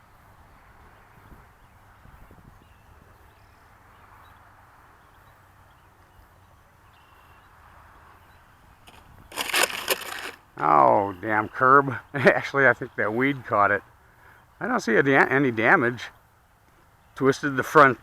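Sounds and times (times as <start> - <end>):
soft steady hiss: 10.4 - 18.0.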